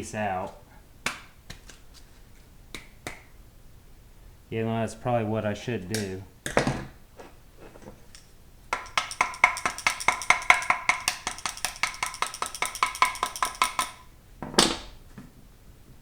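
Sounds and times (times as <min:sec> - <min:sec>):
metal part banging on metal table: 0:08.8 - 0:14.0.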